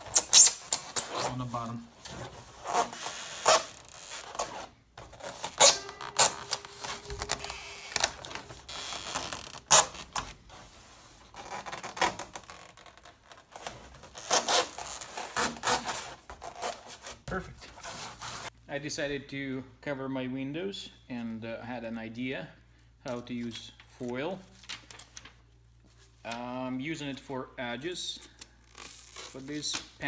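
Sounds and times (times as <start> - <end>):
foam creaking against metal door: 5.2 - 10.2.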